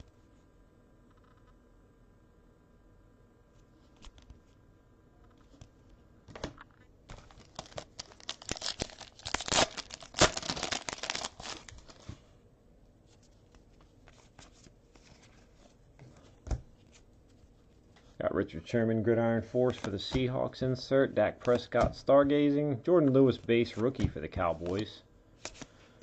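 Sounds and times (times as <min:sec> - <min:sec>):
foil pack tearing and crinkling: 0:07.1 - 0:12.0.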